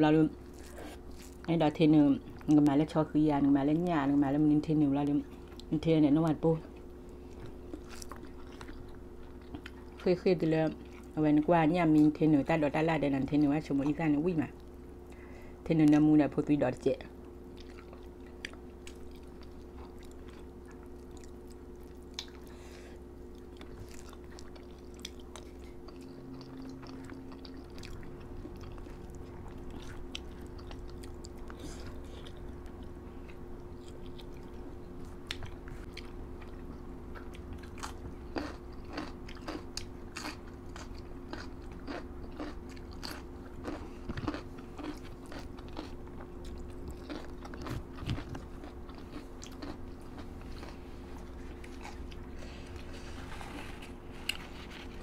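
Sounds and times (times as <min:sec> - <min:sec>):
steady low hum: 0:00.0 - 0:55.0
people chewing and crunching: 0:00.4 - 0:01.5, 0:06.7 - 0:10.1, 0:17.5 - 0:55.0.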